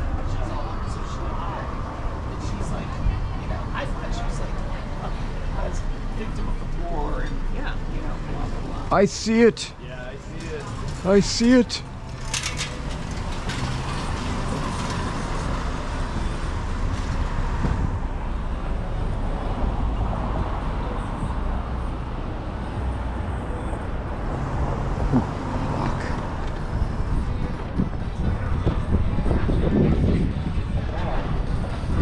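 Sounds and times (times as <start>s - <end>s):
street traffic rumble: 0.0s - 32.0s.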